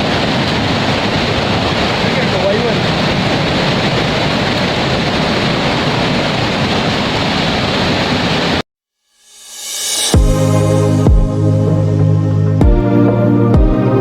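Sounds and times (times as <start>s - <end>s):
rushing water roar: 0.0s - 8.6s
music: 9.1s - 14.0s.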